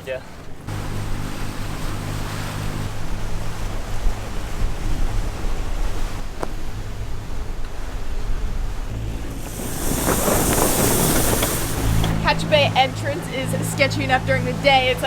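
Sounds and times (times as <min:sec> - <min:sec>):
water rushing past boat: 0:00.0 - 0:15.0
wind on microphone: 0:01.7 - 0:13.4.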